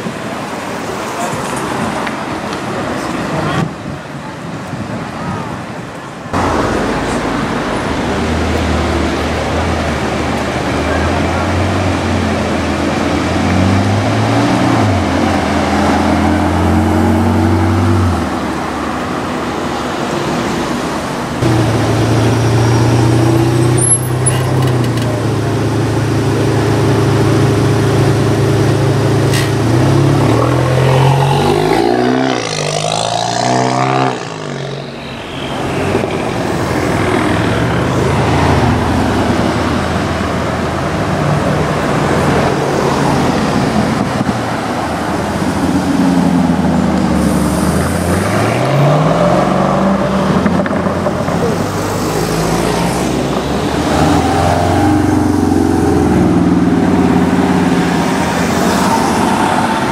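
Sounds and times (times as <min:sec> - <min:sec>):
engine revving: 0:21.4 - 0:40.3
car passing by: 0:29.3 - 0:59.9.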